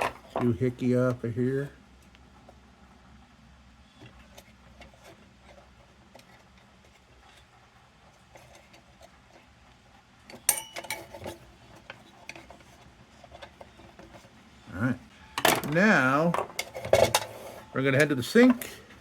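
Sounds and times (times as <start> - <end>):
sharp metallic clinks and clatter: 10.5 - 11.2.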